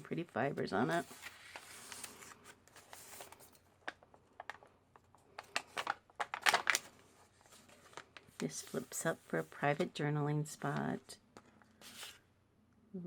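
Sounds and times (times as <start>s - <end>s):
paper rustling: 0.5s - 12.2s
paper clicks and crinkles: 0.6s - 10.0s.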